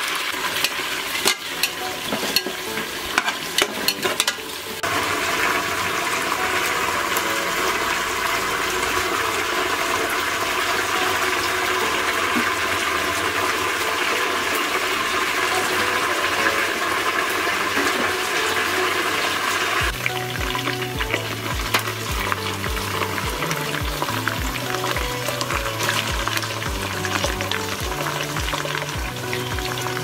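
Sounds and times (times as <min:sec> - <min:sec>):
onions sizzling in oil: 0:00.0 - 0:30.0
background music with kick drum: 0:19.8 - 0:30.0.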